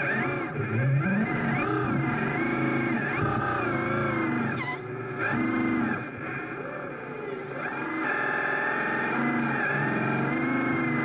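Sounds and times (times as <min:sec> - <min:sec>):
electric motors whining: 0:00.0 - 0:11.0.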